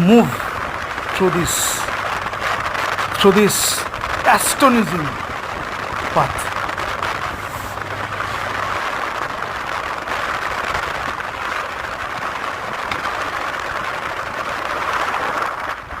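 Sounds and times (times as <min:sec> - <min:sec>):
moving car road and wind noise: 0:05.1 - 0:12.2.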